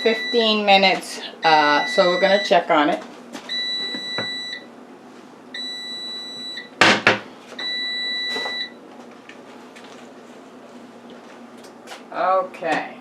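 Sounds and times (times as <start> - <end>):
oven beeping: 0.0 - 4.7, 5.5 - 8.8
loud clunk: 6.8 - 7.3.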